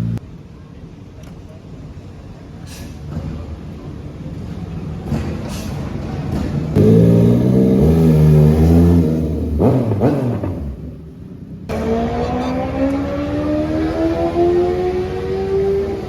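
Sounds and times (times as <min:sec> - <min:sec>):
motorcycle engine passing and revving: 0:00.0 - 0:00.2, 0:05.0 - 0:16.0.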